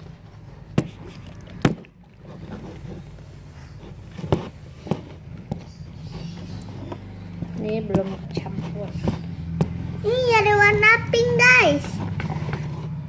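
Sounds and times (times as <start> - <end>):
sharp knocks and taps: 4.2 - 10.9.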